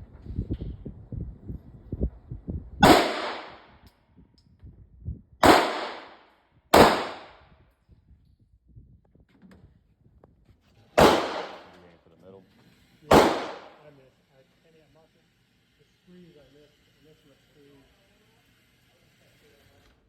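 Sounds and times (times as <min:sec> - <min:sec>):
pistol shots: 0:02.8 - 0:03.7, 0:05.4 - 0:06.2, 0:06.8 - 0:07.4, 0:11.0 - 0:11.8, 0:13.1 - 0:13.8.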